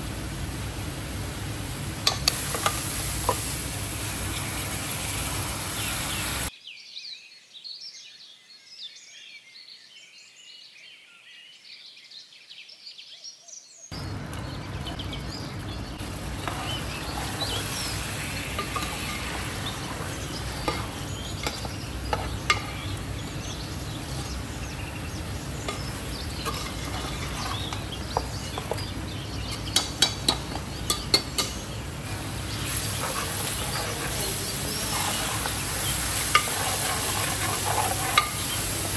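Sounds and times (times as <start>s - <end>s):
food sizzling in oil: 0.0s - 6.5s, 13.9s - 38.9s
spoon stirring and scraping: 16.2s - 24.4s, 25.6s - 31.6s, 32.5s - 38.9s
spoon clinking against pot: 20.6s - 22.9s, 25.7s - 28.9s, 29.5s - 31.6s, 36.2s - 38.6s.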